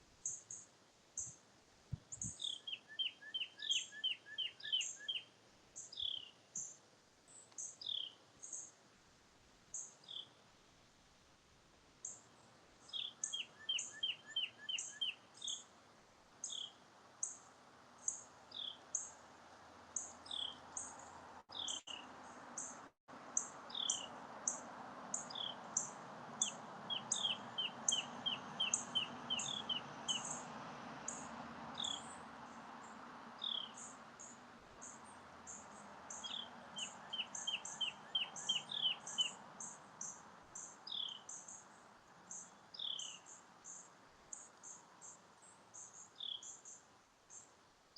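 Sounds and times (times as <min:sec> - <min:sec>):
birds chirping: 0:02.1 - 0:05.2, 0:12.9 - 0:15.6, 0:20.0 - 0:22.8, 0:23.4 - 0:41.7
bird trills: 0:02.3 - 0:05.2, 0:12.9 - 0:15.6, 0:25.2 - 0:30.4, 0:33.4 - 0:41.5.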